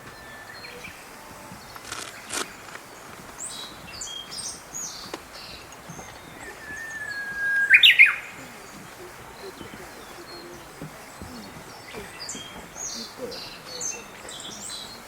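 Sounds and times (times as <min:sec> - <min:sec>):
high bird chirps: 0:00.0 - 0:15.0
bird whistling long note: 0:06.4 - 0:10.8.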